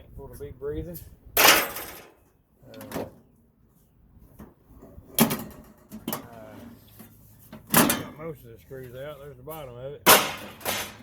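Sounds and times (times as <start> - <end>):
metal clanks: 1.4 - 2.2, 4.4 - 8.3, 10.0 - 11.0
sheet metal scraping: 10.1 - 11.0.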